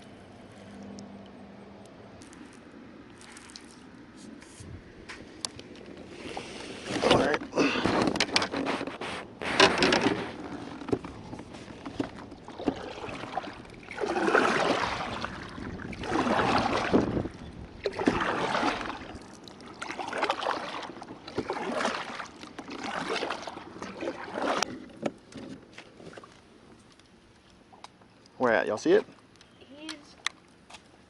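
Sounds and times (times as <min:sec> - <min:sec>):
kayak paddle splashing: 0:05.7 - 0:26.5.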